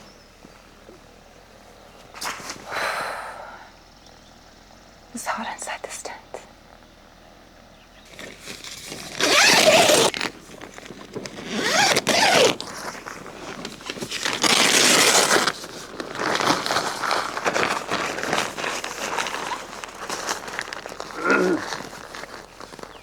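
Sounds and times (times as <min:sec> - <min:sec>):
tent zipper being pulled: 0:08.1 - 0:23.0.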